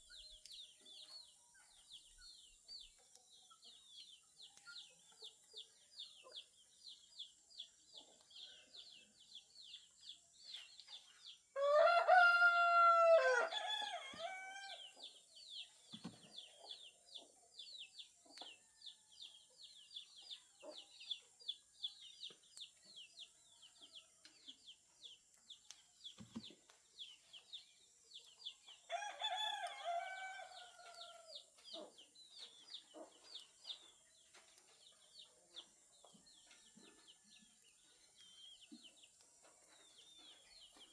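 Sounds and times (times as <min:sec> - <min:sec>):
rooster crowing: 0:11.6 - 0:14.9, 0:28.9 - 0:31.3.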